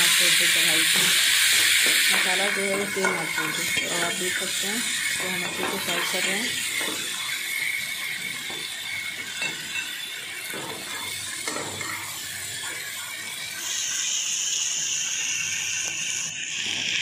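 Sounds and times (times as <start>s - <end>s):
masala sizzling in hot oil: 0.0s - 17.0s
stirring clinking against pan: 8.1s - 12.9s.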